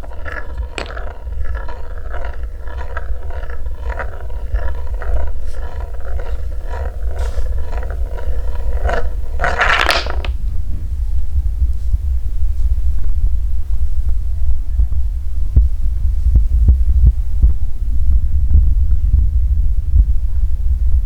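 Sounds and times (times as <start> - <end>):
loud wooden clatter: 0.0 - 10.3
wooden balls rolling on track: 0.0 - 10.4.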